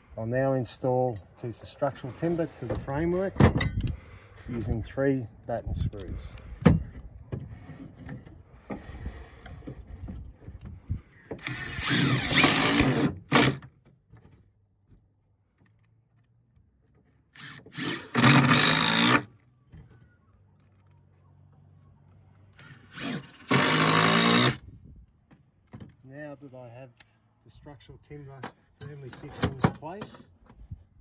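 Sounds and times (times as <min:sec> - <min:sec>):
power driver motor whine: 0:11.4 - 0:13.5.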